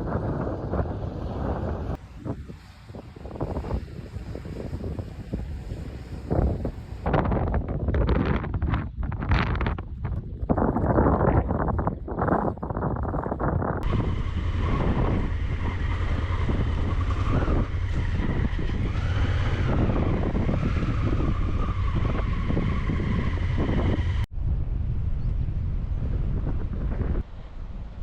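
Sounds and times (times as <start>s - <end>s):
wind buffeting microphone: 0.0s - 28.0s
vehicle engine droning: 13.8s - 24.3s.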